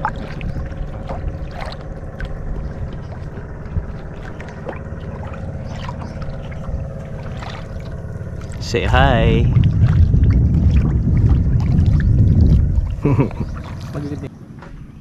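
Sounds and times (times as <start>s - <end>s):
small splashes and knocks: 0.0s - 8.6s, 9.6s - 14.8s
boat low rumble: 0.0s - 15.0s
faint steady hum: 0.0s - 15.0s.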